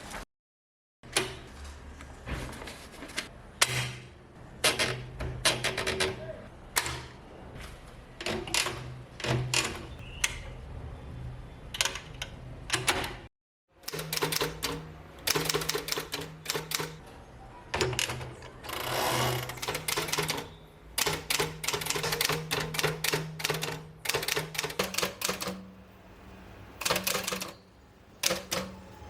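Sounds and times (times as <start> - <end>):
typewriter keys clacking: 13.9 - 17.0, 19.5 - 25.6, 26.8 - 27.6, 28.2 - 28.9.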